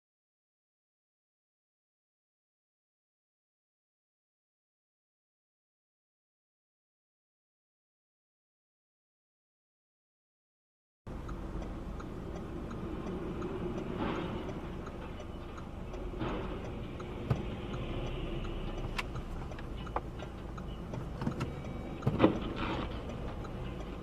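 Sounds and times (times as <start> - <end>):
faint ticking: 11.1 - 24.0
vehicle engine running: 11.1 - 24.0.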